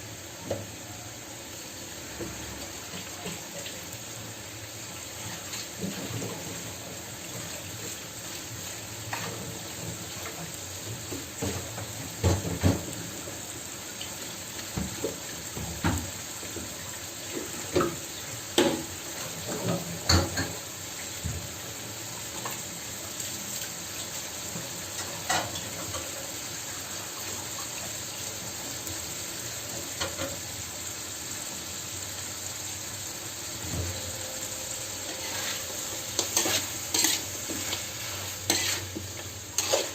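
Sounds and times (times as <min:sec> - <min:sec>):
steady cooking hiss: 0:00.0 - 0:39.9
utensils clicking on cookware: 0:38.5 - 0:39.9.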